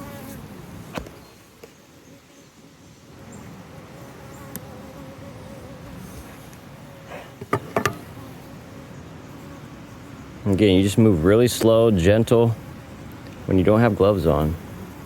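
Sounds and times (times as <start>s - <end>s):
bees buzzing: 0.0s - 15.0s
sharp knocks: 7.4s - 8.0s.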